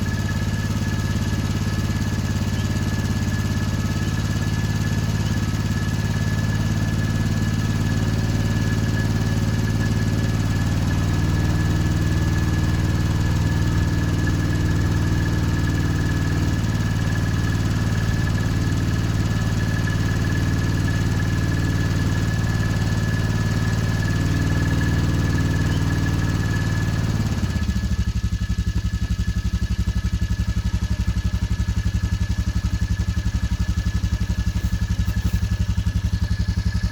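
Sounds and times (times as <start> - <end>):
engine idling: 0.0 - 36.9.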